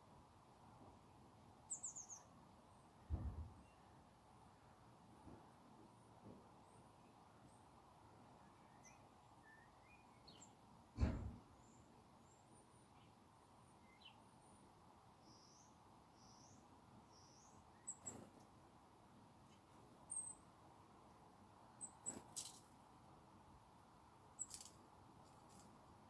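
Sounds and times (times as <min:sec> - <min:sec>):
small birds chirping: 0:01.5 - 0:05.6, 0:06.3 - 0:26.0
loud thump: 0:03.1 - 0:03.5, 0:11.0 - 0:11.4.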